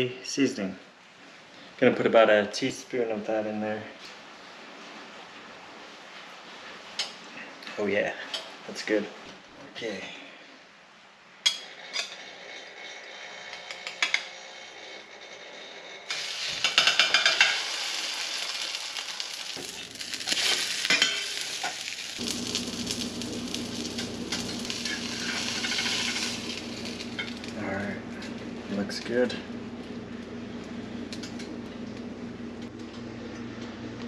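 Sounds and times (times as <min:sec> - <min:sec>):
patty sizzling in frying pan: 0:16.1 - 0:31.5.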